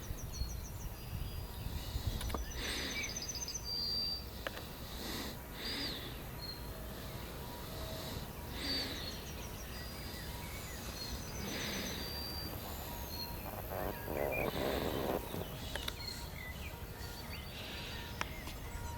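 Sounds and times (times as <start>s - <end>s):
birds singing and calling: 0.0s - 18.9s.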